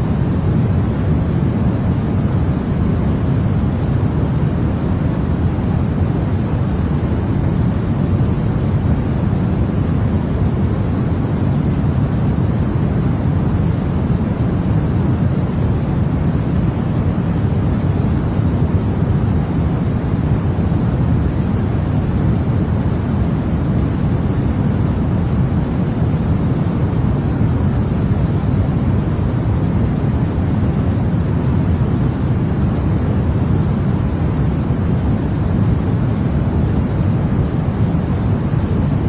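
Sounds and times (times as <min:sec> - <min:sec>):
white noise hiss: 0:00.0 - 0:39.0.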